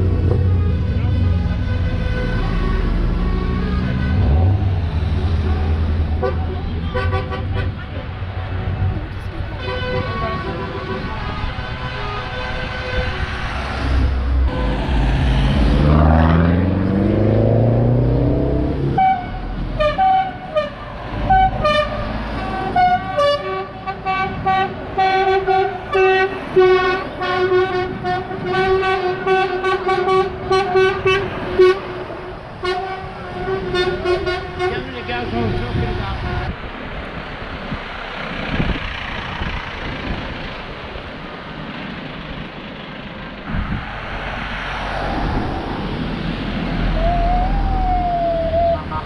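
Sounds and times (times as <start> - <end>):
vehicle horns sounding: 5.4 - 7.8, 9.6 - 13.3, 18.9 - 32.0, 32.6 - 36.6
engine revving: 13.4 - 19.8.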